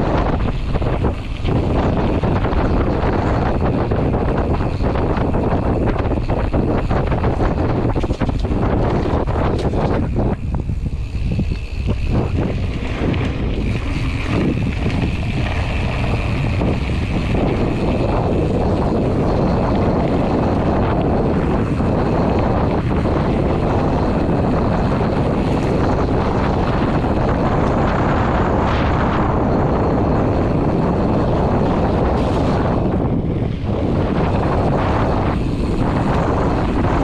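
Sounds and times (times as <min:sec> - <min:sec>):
bike knocks and rattles: 0:00.0 - 0:37.0
wind buffeting microphone: 0:00.0 - 0:37.0.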